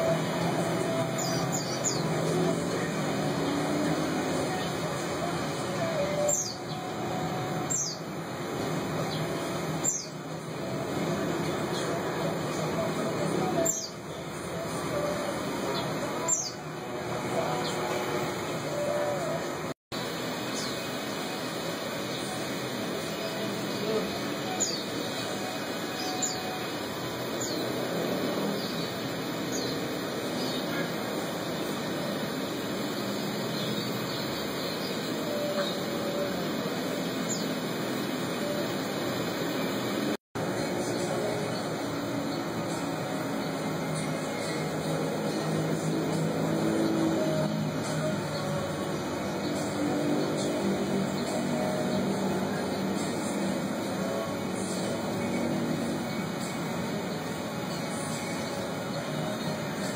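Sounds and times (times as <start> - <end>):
steady background noise: 0.0 - 59.9
bird chirping: 5.8 - 8.1, 9.0 - 10.2.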